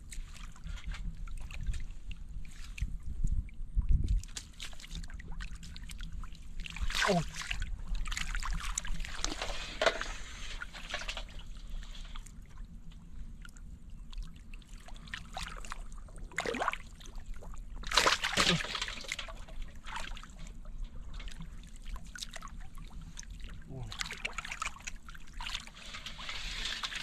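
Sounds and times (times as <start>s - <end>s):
water sloshing and trickling: 0.0s - 27.0s
water splashes: 4.0s - 12.6s, 13.4s - 27.0s.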